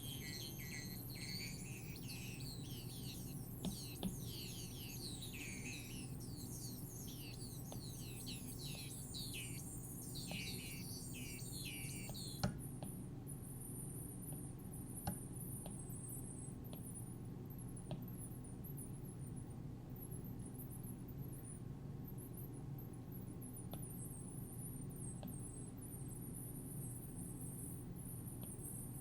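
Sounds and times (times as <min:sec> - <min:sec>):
synthesized bird-like chirps: 0:00.0 - 0:12.4
steady low hum: 0:00.0 - 0:29.0.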